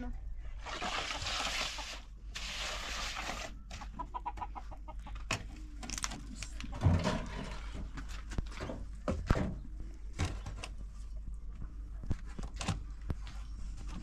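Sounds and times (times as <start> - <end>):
chickens clucking: 3.8 - 5.6.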